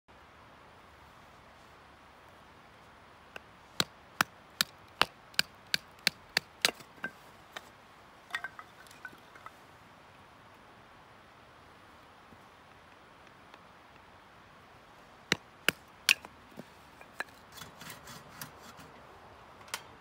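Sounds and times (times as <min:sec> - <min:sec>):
light metallic clinks: 0:08.3 - 0:09.6.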